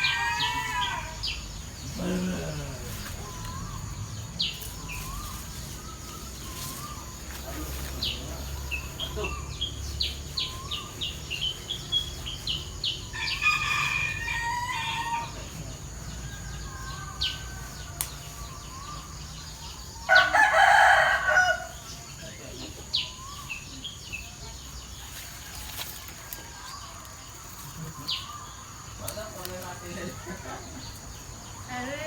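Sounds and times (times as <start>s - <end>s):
rooster crowing: 0.0s - 2.6s, 13.1s - 19.1s, 20.0s - 22.0s
high insect-like hiss: 0.0s - 32.0s
small birds chirping: 0.0s - 32.0s.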